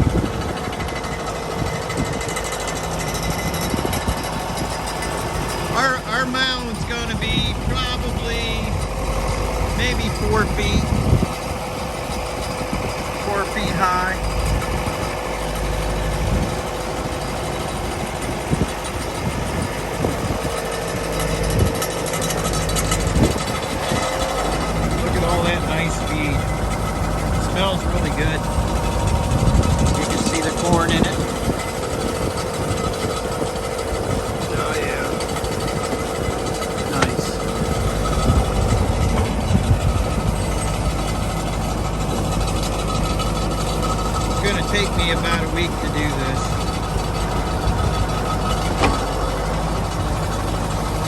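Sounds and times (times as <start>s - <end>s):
steady whine: 0.0s - 51.0s
tractor engine running: 0.0s - 51.0s
short knocks: 47.8s - 49.4s
knocks: 48.6s - 49.2s.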